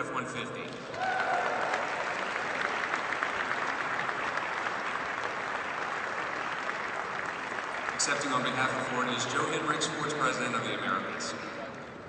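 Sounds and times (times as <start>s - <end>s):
audience applauding: 0.8s - 9.2s.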